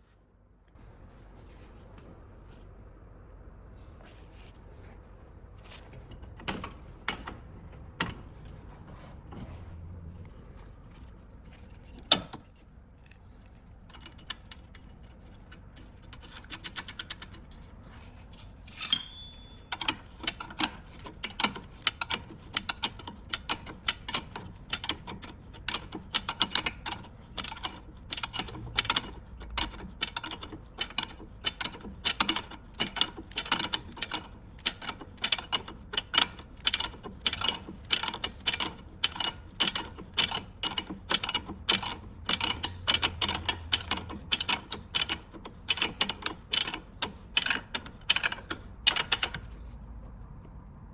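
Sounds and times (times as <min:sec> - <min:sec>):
sharp metallic clink: 0:18.3 - 0:19.9
ratchet wrench clicking: 0:25.7 - 0:49.6.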